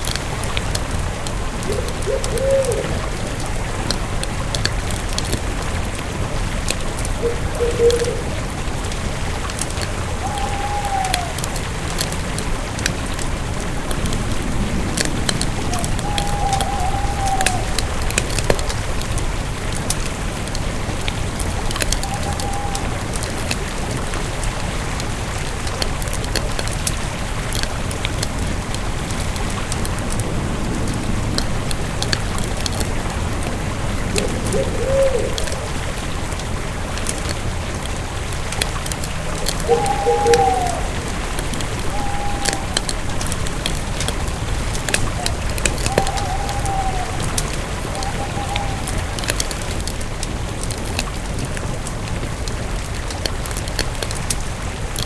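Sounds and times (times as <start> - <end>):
campfire wood crackling: 0.0 - 55.0
fire hiss and low rumble: 0.0 - 55.0.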